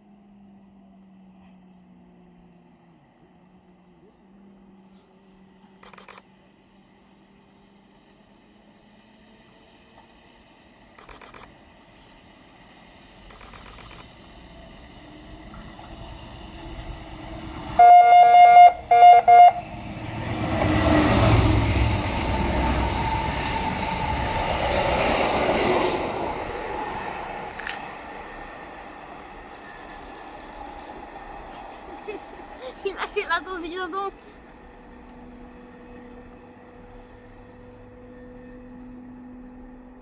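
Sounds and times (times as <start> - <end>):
wheels rushing on rails: 0.0 - 40.0
train horn blasts: 17.7 - 19.8.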